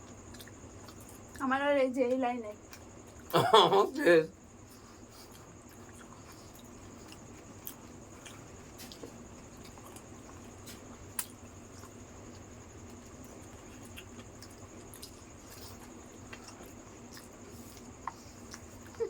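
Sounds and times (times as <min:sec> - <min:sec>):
wet eating sounds: 0:00.0 - 0:01.5.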